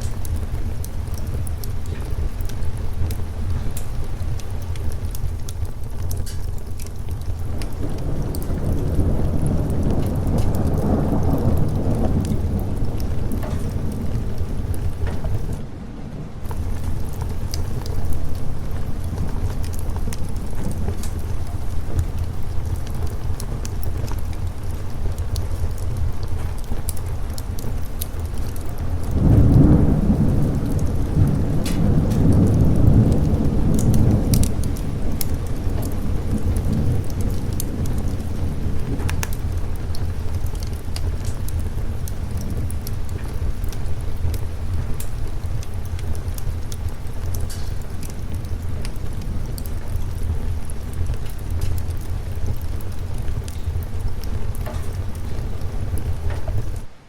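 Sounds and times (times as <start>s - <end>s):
sharp crackles: 0.0s - 57.0s
steady rain: 0.0s - 57.0s
thunder rumbling: 0.0s - 57.0s
small ticks: 45.0s - 49.0s.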